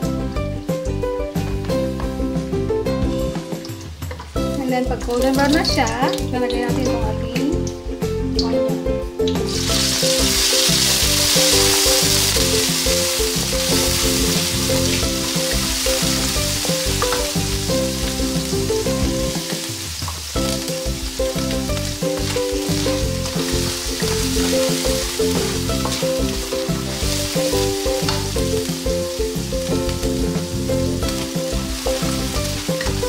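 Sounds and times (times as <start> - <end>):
background music: 0.0 - 33.0
onion sizzling in hot oil: 3.0 - 8.5, 9.3 - 33.0
wooden spatula stirring: 9.8 - 33.0.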